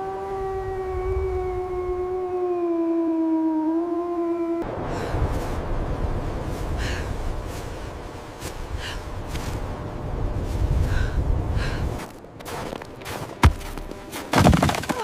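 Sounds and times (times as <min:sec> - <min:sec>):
steady low rumble: 0:04.6 - 0:14.2.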